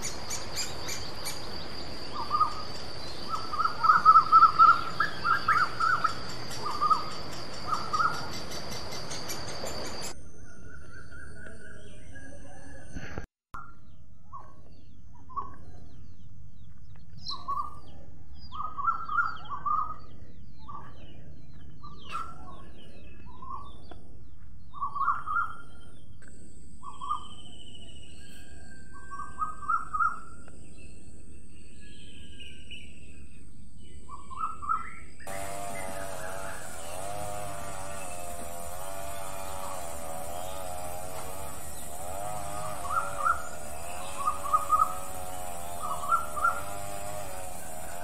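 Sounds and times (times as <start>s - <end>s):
higher bird chirps: 0.0s - 12.2s, 33.9s - 47.9s
buzzing hum: 35.3s - 48.0s
steady background noise: 35.3s - 48.0s
steady high hiss: 35.3s - 48.0s.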